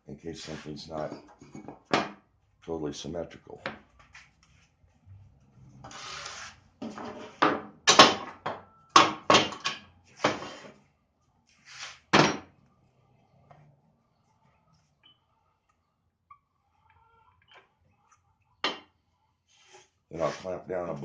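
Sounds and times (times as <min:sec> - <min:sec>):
wood scraping on workbench: 0:05.8 - 0:07.6, 0:10.2 - 0:10.8.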